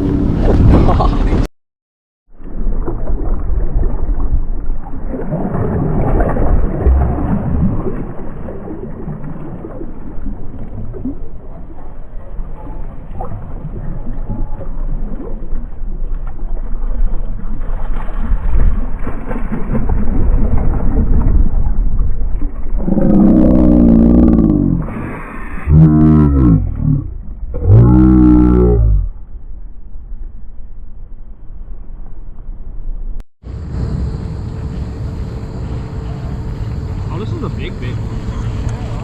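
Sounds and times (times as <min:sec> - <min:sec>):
wind buffeting microphone: 0:00.0 - 0:01.5, 0:19.7 - 0:23.1.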